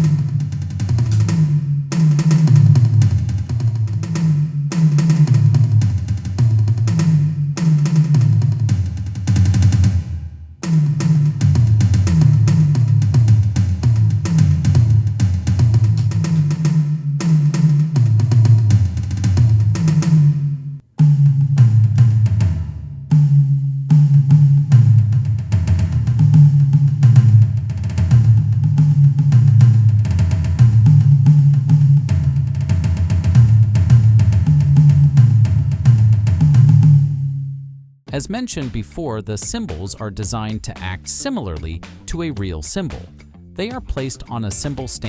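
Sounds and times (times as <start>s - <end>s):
electronic drum tom fills: 0.0s - 23.4s, 38.1s - 45.0s.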